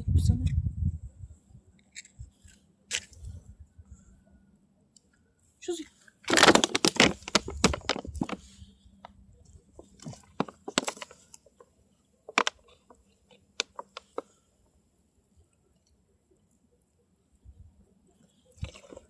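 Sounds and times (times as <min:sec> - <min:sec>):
matchbox scrapes and clicks: 0:01.8 - 0:03.3.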